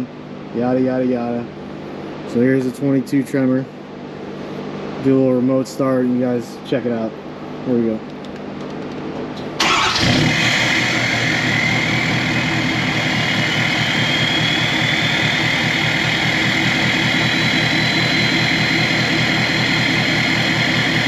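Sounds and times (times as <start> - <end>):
high whine: 9.6 - 21.0
truck engine starting and idling: 9.6 - 21.0.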